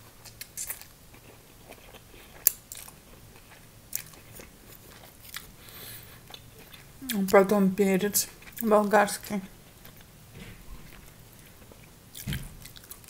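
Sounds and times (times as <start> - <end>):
person chewing noodles: 0.0 - 7.4, 8.3 - 8.7, 10.8 - 13.0.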